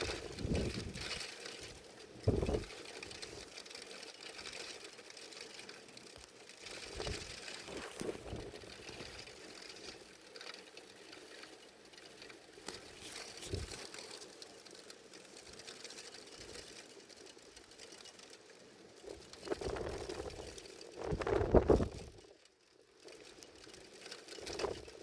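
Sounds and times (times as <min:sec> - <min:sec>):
strong wind gusting over microphone: 0:00.0 - 0:01.2, 0:02.2 - 0:02.7, 0:21.1 - 0:22.1.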